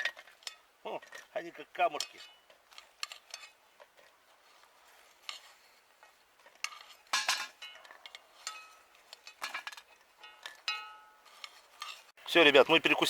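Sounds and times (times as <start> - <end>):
spoons scraping and clinking on plates: 6.5 - 12.1.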